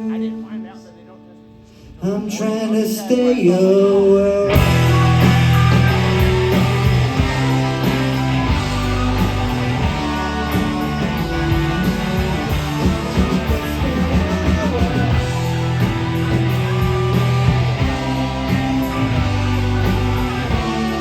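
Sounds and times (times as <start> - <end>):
live rock band playing: 4.4 - 21.0.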